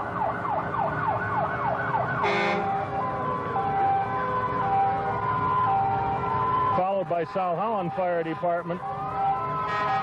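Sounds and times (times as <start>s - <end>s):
two-tone siren: 0.0s - 7.1s, 7.8s - 10.0s
fast yelping siren: 0.2s - 6.8s, 8.7s - 10.0s
fire engine horn blast: 2.2s - 3.0s, 9.6s - 10.0s.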